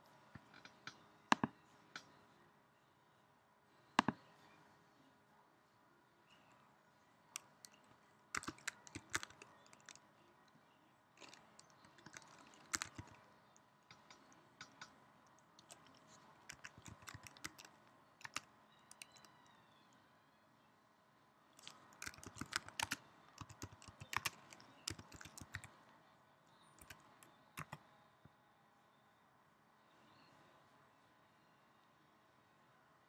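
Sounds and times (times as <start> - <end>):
typing on a computer keyboard: 7.4 - 10.0, 11.2 - 13.2, 15.6 - 19.4, 21.6 - 25.7, 26.8 - 27.8.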